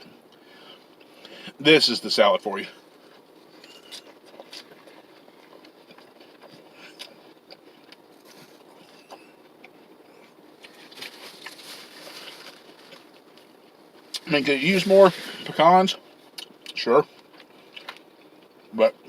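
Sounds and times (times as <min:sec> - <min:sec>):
chewing salad: 0:03.0 - 0:14.3, 0:16.3 - 0:18.7
rustling: 0:10.6 - 0:13.4.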